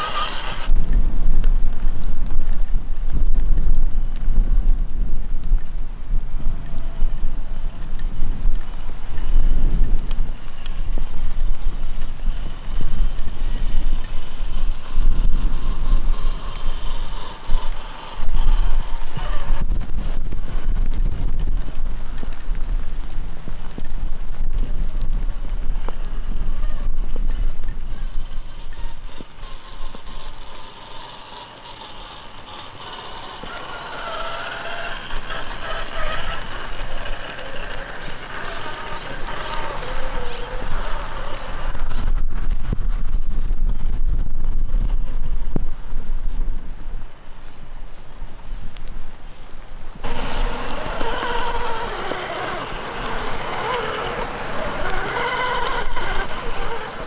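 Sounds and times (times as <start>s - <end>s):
electric motor whine: 0.0s - 0.8s, 11.8s - 20.3s, 25.7s - 42.2s, 50.0s - 57.0s
wind buffeting microphone: 0.0s - 57.0s.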